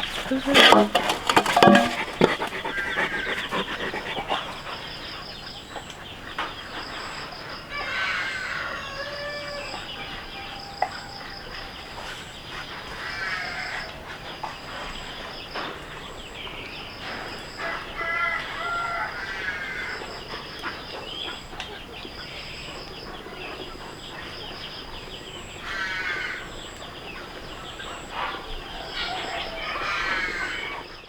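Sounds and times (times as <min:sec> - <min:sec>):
farm animal cries: 0:00.1 - 0:04.4.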